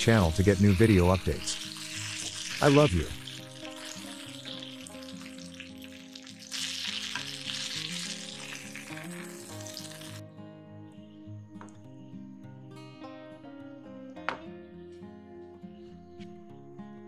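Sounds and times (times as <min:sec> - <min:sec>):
chicken sizzling in oil: 0:00.0 - 0:10.2
soft background music: 0:00.0 - 0:17.0.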